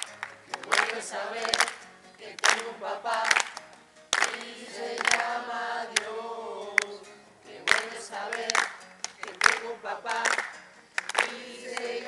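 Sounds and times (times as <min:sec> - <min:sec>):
sharp hand clap: 0:00.0 - 0:01.8, 0:02.4 - 0:06.1, 0:07.6 - 0:12.0.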